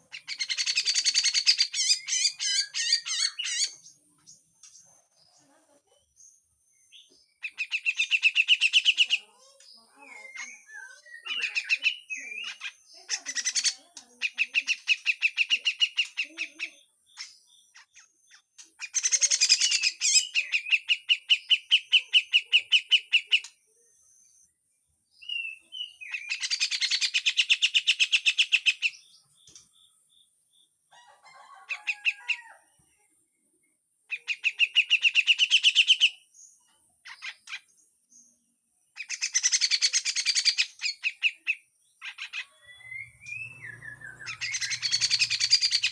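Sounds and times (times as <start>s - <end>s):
bulbul harsh chatter: 7.5s - 17.4s, 42.1s - 45.9s.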